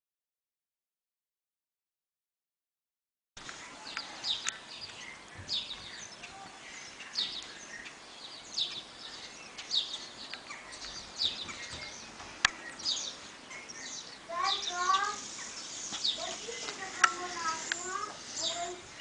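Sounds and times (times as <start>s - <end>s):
bird chirping: 3.4s - 19.0s
faint steady hiss: 3.4s - 19.0s.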